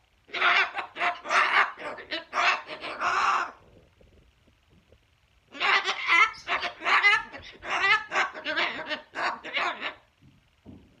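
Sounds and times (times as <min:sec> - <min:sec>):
parrot calling: 0:00.3 - 0:03.6, 0:05.5 - 0:10.1.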